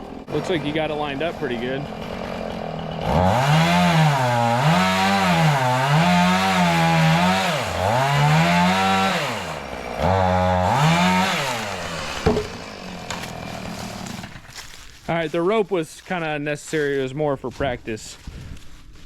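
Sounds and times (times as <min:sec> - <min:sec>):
chainsaw cutting wood: 0:00.0 - 0:14.7.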